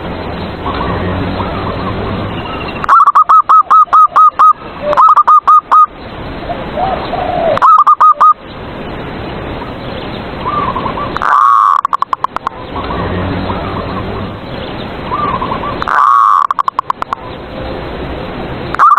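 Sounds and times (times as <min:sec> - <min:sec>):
dove cooing: 0:02.9 - 0:05.9, 0:06.8 - 0:08.4, 0:15.1 - 0:16.9
faint bird calls: 0:06.5 - 0:08.4, 0:10.4 - 0:14.4, 0:15.1 - 0:17.3.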